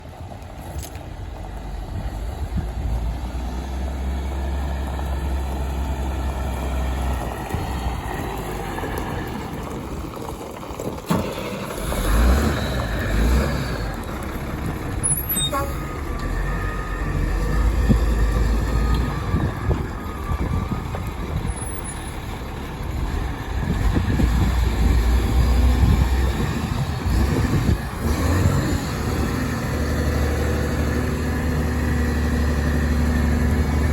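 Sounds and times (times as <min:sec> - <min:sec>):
truck engine rumbling: 0:00.0 - 0:33.9.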